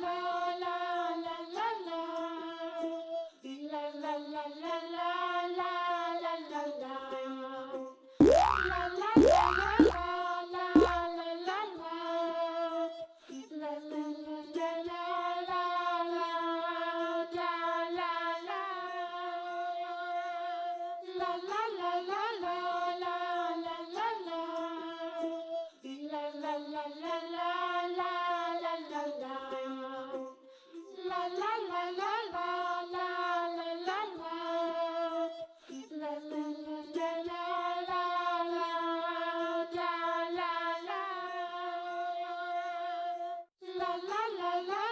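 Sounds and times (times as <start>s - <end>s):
child-like voice singing: 8.2s - 10.1s, 10.8s - 11.2s
rising boing glide: 8.2s - 10.1s, 10.8s - 11.0s.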